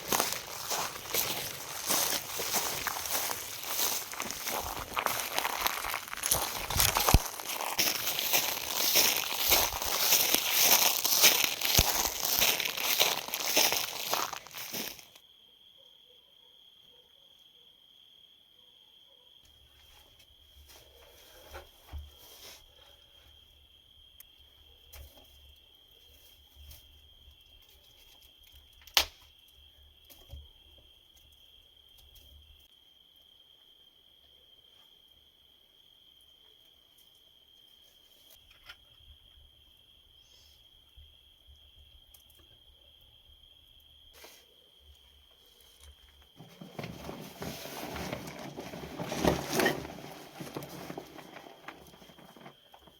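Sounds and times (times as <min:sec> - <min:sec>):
rapid rustling and crunching: 0:00.0 - 0:15.2, 0:46.4 - 0:52.9
cricket trilling: 0:00.0 - 0:19.4, 0:22.6 - 0:52.9.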